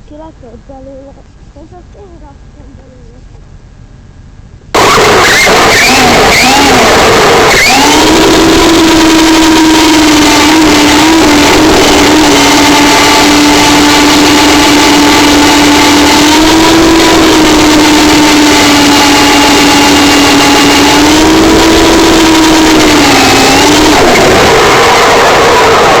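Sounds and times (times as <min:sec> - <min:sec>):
model helicopter humming: 0:04.8 - 0:26.0.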